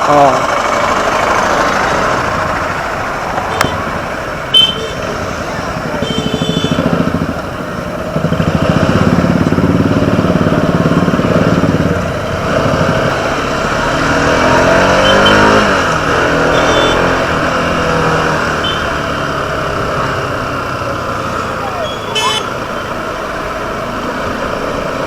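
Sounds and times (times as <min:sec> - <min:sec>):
motorcycle engine running: 0:00.0 - 0:25.0
wind and road noise: 0:00.0 - 0:25.0.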